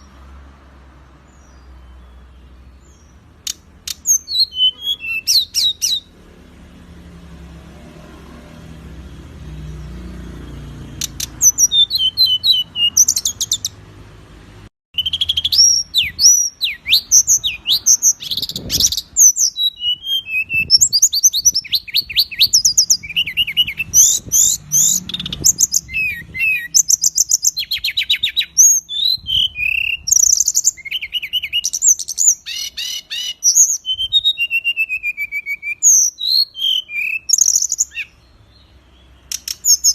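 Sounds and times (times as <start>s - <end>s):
songbird singing trills and whistles: 1.3s - 6.1s, 10.8s - 13.8s, 15.0s - 39.9s.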